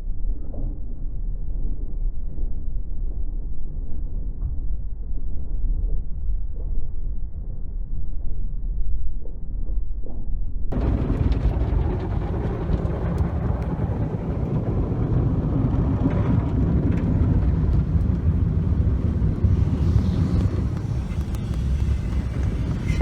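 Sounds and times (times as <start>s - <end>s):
car wash rumble: 10.8s - 23.0s.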